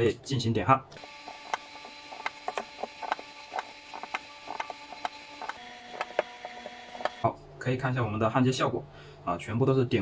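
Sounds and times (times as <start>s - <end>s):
steady low hum: 0.9s - 7.6s.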